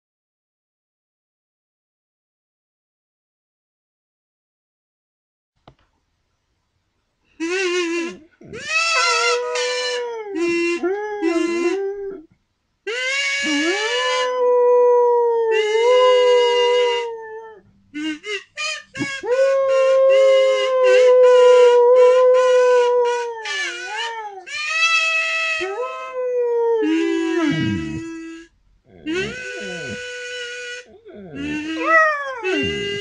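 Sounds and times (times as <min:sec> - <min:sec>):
kazoo notes: 0:07.4 - 0:12.2, 0:12.9 - 0:33.0
dog howling: 0:08.5 - 0:12.2, 0:13.4 - 0:17.6, 0:19.0 - 0:24.5, 0:25.5 - 0:28.2, 0:28.9 - 0:30.2, 0:30.9 - 0:33.0.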